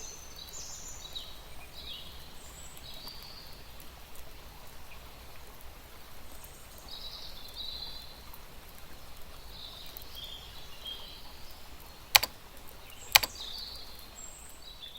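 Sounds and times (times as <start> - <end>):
sharp clicks: 12.2 - 12.4, 13.1 - 13.5.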